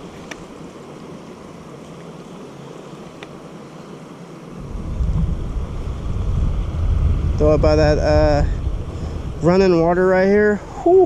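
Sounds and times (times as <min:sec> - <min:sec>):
creek water rushing: 0:00.0 - 0:11.0
wind buffeting microphone: 0:04.6 - 0:11.0.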